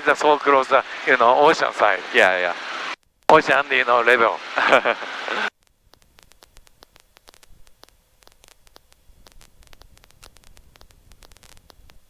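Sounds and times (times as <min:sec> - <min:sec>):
intercom static hiss and hum: 0:00.0 - 0:12.0
crackling clicks: 0:05.5 - 0:12.0.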